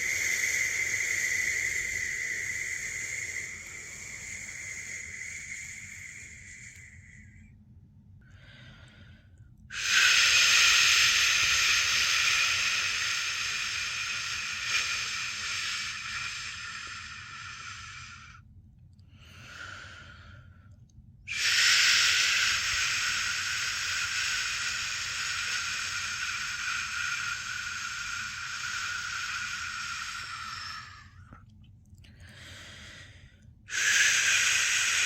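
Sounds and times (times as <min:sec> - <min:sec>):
person shushing: 0:21.3 - 0:31.2.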